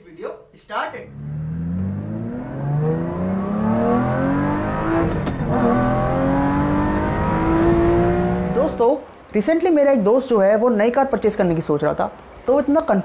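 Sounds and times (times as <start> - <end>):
car engine accelerating: 1.1 - 8.8.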